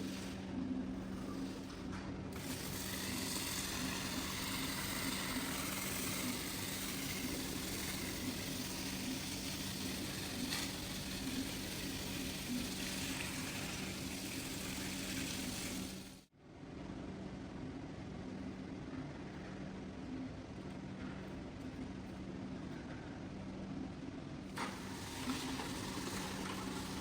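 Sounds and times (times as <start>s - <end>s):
motor hum: 0.0s - 16.3s, 24.5s - 27.0s.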